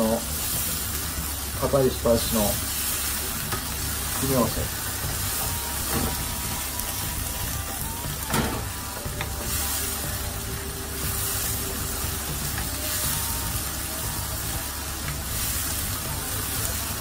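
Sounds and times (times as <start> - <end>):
onions sizzling in a frying pan: 0.0 - 17.0.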